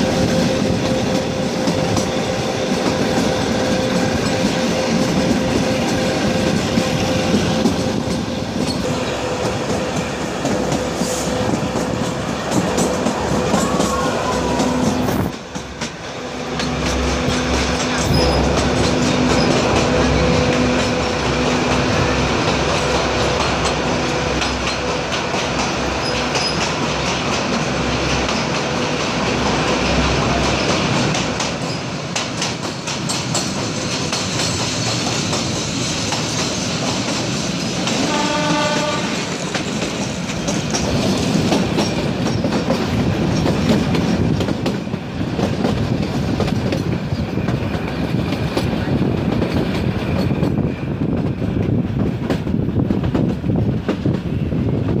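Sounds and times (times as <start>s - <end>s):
train horn: 0.0s - 15.4s, 16.1s - 26.2s, 37.8s - 39.5s
train wheels clattering on rail: 0.0s - 55.0s.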